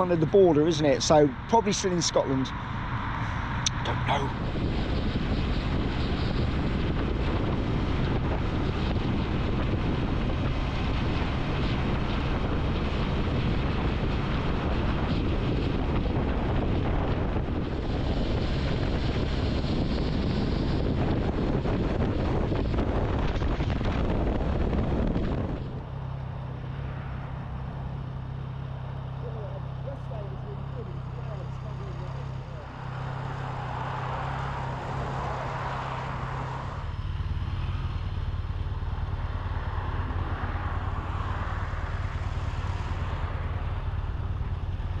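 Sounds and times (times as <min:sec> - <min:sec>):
motorcycle engine: 0:02.5 - 0:45.0
wind on microphone: 0:02.7 - 0:27.8.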